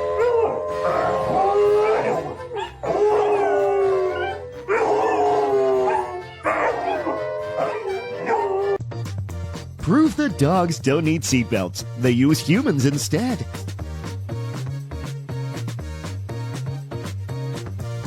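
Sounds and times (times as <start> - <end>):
dog howling: 0.0 - 8.8.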